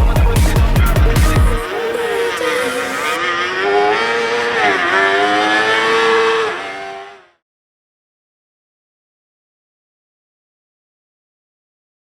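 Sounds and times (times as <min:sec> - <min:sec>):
race car revving: 0:00.2 - 0:07.4.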